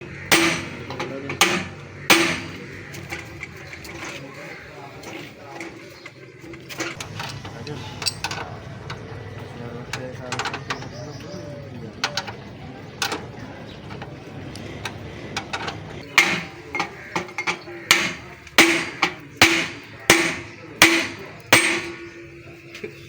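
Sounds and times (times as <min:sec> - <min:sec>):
hammer striking metal: 0:00.1 - 0:03.3, 0:15.4 - 0:22.4.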